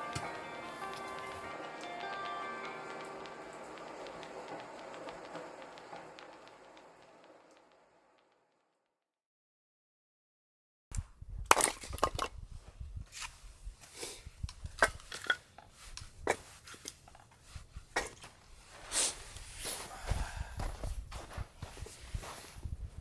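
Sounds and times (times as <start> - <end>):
strong wind rumble: 11.0 - 14.8, 19.5 - 23.0.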